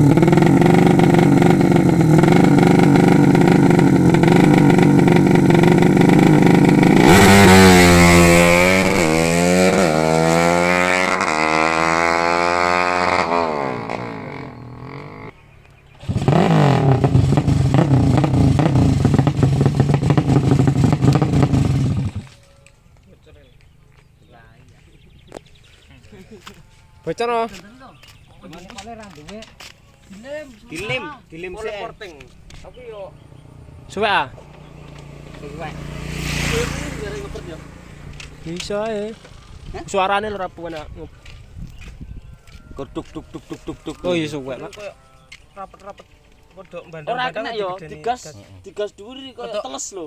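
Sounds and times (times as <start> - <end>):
motorcycle engine revving: 0.0 - 24.4, 25.0 - 46.5
people talking: 25.9 - 33.2, 33.8 - 34.5, 35.4 - 37.7, 38.4 - 41.2, 42.6 - 50.0.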